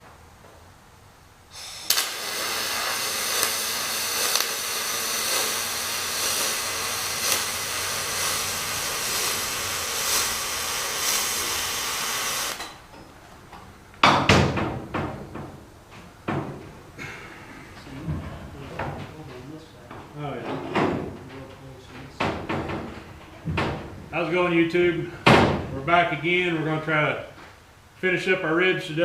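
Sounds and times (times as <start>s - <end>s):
welding arc hissing and crackling: 1.5s - 12.9s.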